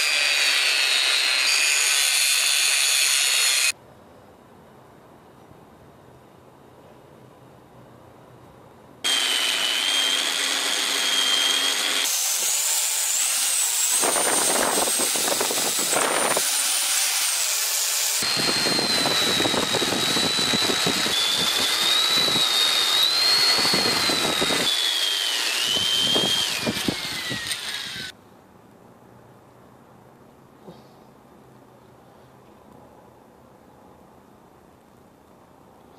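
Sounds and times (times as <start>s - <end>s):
angle grinder cutting metal: 0.0s - 3.8s, 9.1s - 28.1s.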